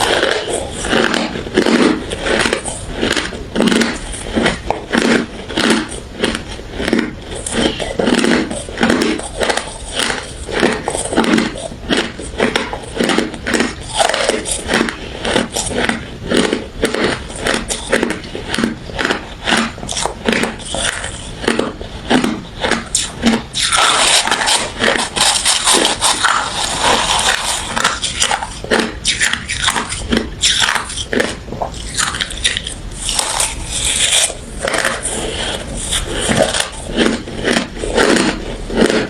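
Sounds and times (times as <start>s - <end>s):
ice being chewed: 0.0s - 39.0s.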